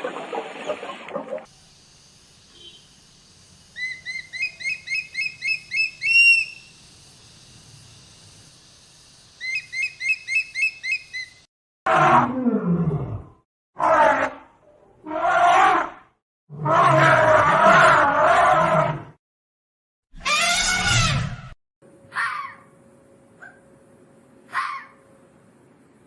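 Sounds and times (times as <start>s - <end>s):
bird chirping high: 3.8s - 6.7s, 9.4s - 11.5s
large animal calling: 20.2s - 21.4s.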